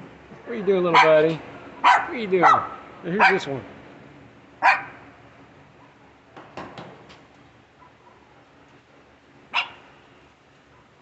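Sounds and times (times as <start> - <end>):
dog barking: 0.9 - 1.2, 1.8 - 3.5, 4.6 - 5.0, 5.8 - 6.2, 7.8 - 8.3, 9.5 - 9.9, 10.7 - 11.0.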